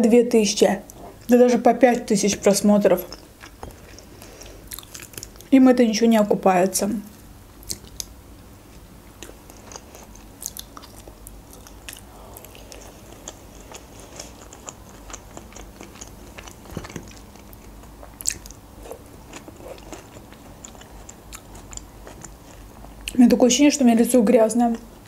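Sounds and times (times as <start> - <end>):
chewing with wet mouth clicks: 3.0 - 5.5, 7.1 - 23.2.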